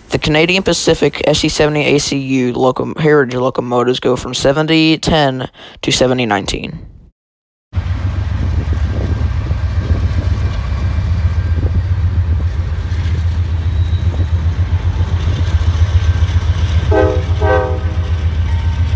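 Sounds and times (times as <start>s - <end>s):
diesel locomotive engine idling: 7.8s - 18.9s
short horn blasts: 16.8s - 18.1s.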